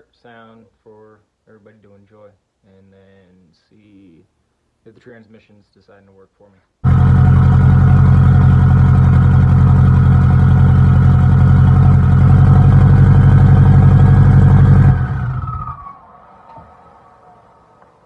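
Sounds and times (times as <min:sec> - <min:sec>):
car engine running loud: 0:06.8 - 0:15.9.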